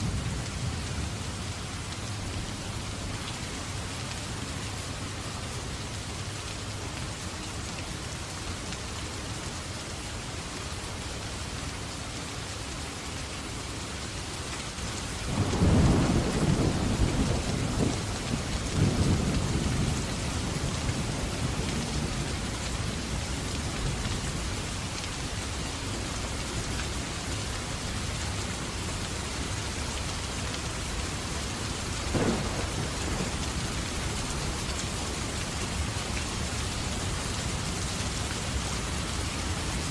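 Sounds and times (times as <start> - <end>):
rain hissing: 15.1 - 39.9
thunder rumbling: 15.3 - 23.2, 32.1 - 34.6
sharp thunder clap: 32.1 - 33.4.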